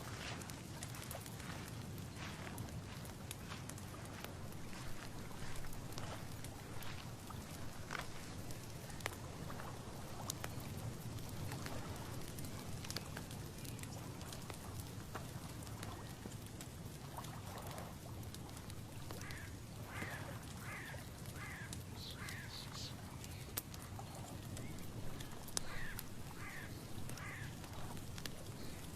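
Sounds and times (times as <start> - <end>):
low outdoor rumble: 0.0 - 28.9
small ticks: 0.1 - 28.9
bird giving short calls: 20.0 - 23.0, 25.6 - 27.5.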